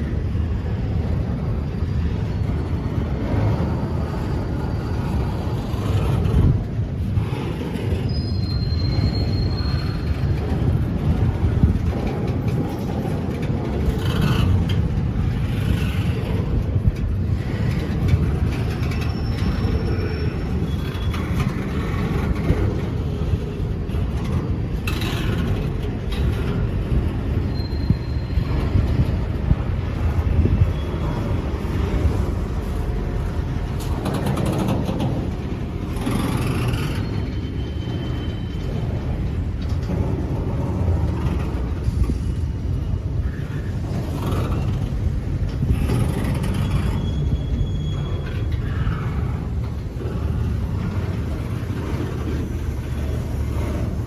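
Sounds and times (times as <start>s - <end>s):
train clacks: 0.0s - 54.0s
train rumbling past: 0.0s - 54.0s
short high squeals: 8.0s - 10.2s, 27.4s - 28.8s, 46.4s - 49.0s.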